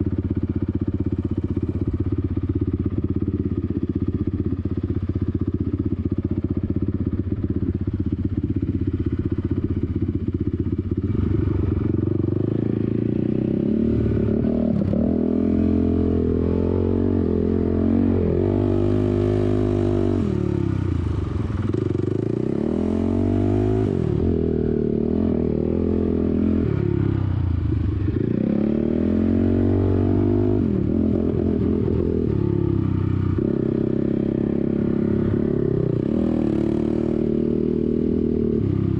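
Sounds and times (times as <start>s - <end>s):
off-road vehicle engine revving: 11.0s - 27.1s, 28.2s - 32.7s, 33.3s - 38.9s.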